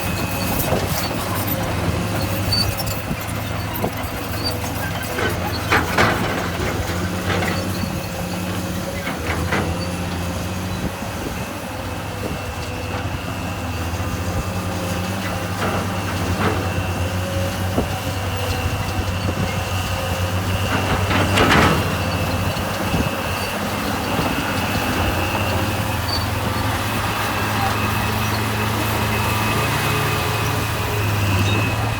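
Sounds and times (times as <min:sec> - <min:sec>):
heavy machinery diesel engine: 0:00.0 - 0:31.9
metal clanks and knocks: 0:00.5 - 0:10.5, 0:15.2 - 0:18.7, 0:20.4 - 0:23.1.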